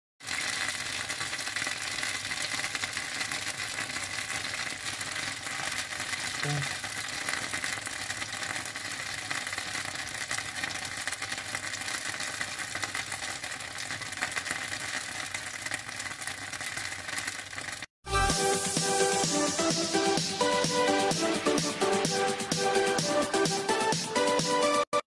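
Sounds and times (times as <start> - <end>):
dumplings sizzling in a pan: 0.2 - 17.9.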